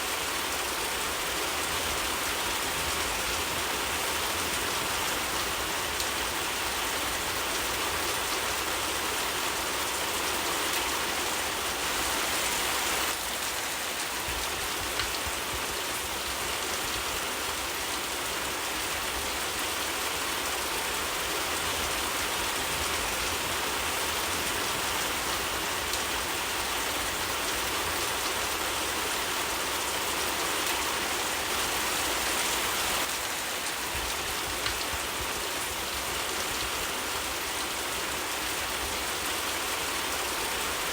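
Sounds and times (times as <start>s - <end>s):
heavy rainfall: 0.0s - 40.9s.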